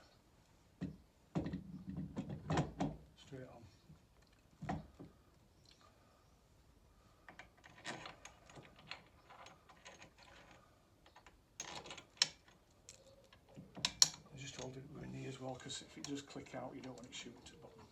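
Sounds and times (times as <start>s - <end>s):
metal parts clicking and tapping: 7.3s - 14.8s.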